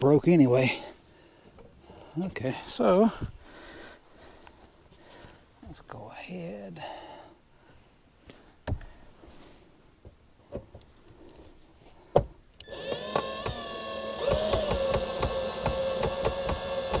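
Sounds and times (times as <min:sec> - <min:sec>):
cordless drill whining and ticking: 0:12.6 - 0:17.0.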